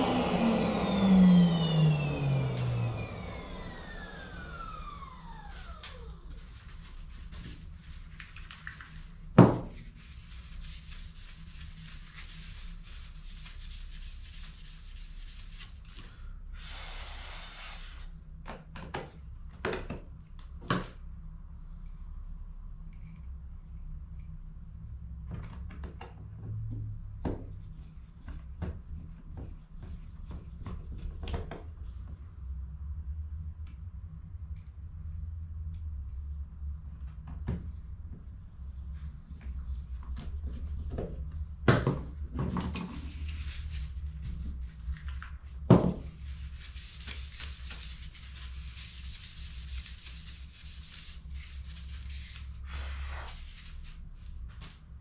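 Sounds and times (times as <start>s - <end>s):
brief rushing hiss: 16.6s - 18.1s.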